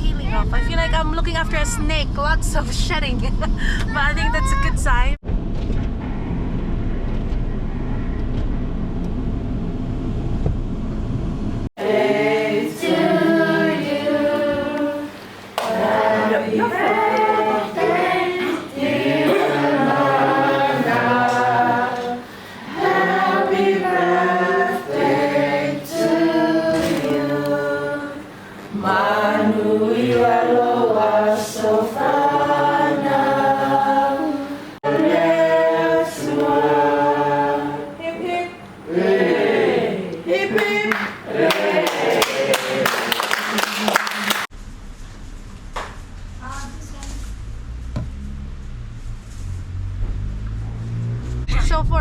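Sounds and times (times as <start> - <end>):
low rumble: 0.0 - 11.7, 44.5 - 52.0
choir singing unaccompanied: 11.8 - 43.4.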